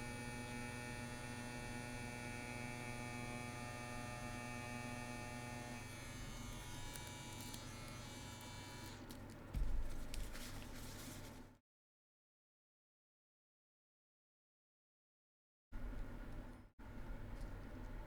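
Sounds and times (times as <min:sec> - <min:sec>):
tattoo machine humming: 0:00.0 - 0:09.1.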